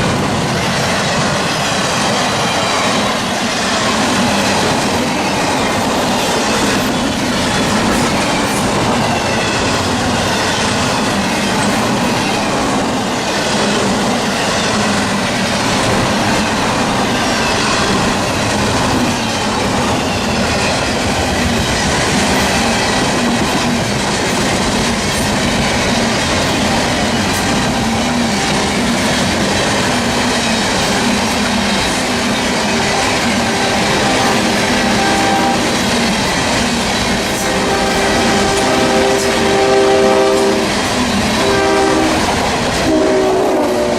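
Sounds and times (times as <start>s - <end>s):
train wheels clacking on rails: 0.0s - 43.9s.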